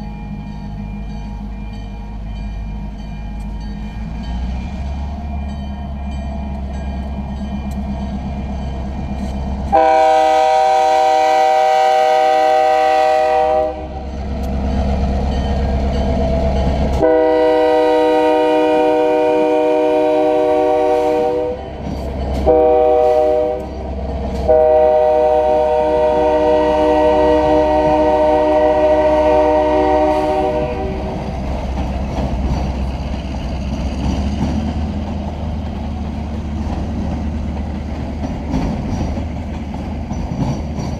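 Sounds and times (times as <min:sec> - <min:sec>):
locomotive air horn blasts: 0:09.7 - 0:14.0, 0:17.0 - 0:21.7, 0:22.4 - 0:23.8, 0:24.4 - 0:31.2
locomotive engines running low: 0:30.6 - 0:40.9.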